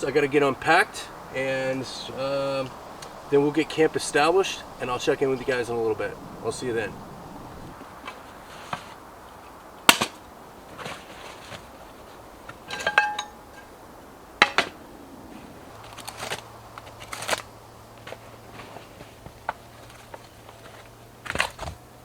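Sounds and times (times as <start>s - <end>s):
camping gear knocks and clicks: 9.8s - 13.8s, 14.4s - 14.8s, 15.7s - 22.0s
metallic clink: 12.7s - 13.7s.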